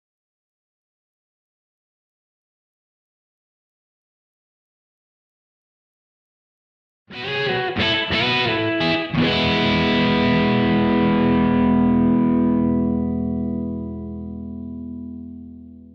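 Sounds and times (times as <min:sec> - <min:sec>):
electric guitar strummed: 0:07.1 - 0:15.9.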